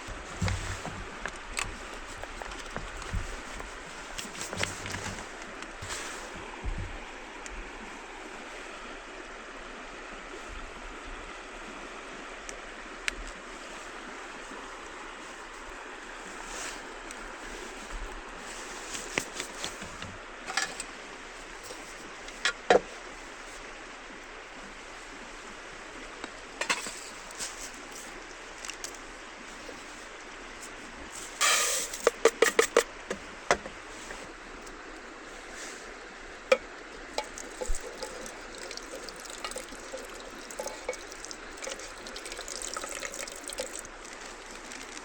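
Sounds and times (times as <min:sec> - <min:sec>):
river flowing: 0:00.0 - 0:45.0
sharp clicks or knocks: 0:31.4 - 0:32.9.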